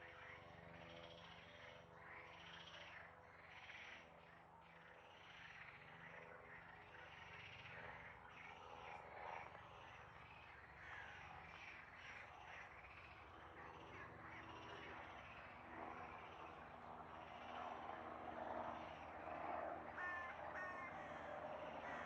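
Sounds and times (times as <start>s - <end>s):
low steady hum: 0.0s - 22.0s
animal calls: 18.9s - 22.0s.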